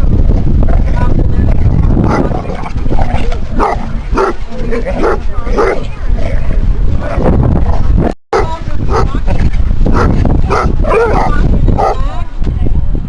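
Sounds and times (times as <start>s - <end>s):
steady low rumble: 0.0s - 13.0s
dogs barking: 2.0s - 6.4s, 8.4s - 9.2s, 9.9s - 12.1s.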